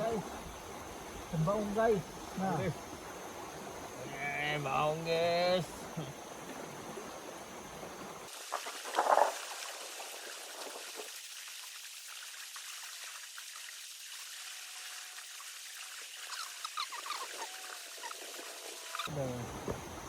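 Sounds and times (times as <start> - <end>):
faint steady hiss: 0.0 - 20.0
water splashing: 0.0 - 20.0
water trickling: 0.0 - 20.0
small crackles: 8.3 - 11.3.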